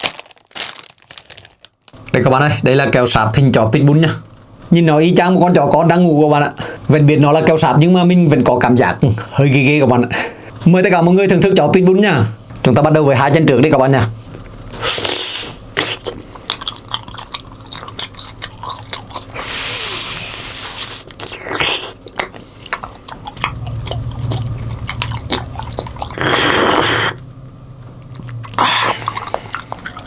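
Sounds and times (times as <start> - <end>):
wet chewing: 15.8 - 27.2, 28.0 - 30.0.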